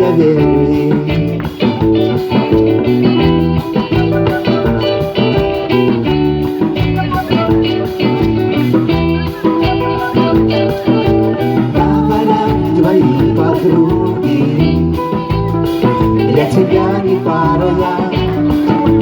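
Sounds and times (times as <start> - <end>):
reggae band playing: 0.0 - 19.0.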